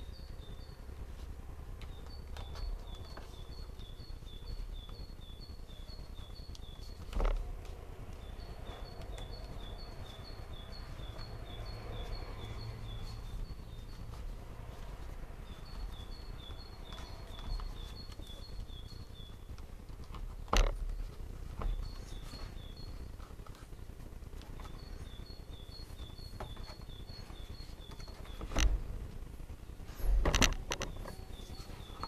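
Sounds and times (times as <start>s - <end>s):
bird chirping: 0.0s - 32.0s
hands rustling a dashboard panel: 19.5s - 32.0s.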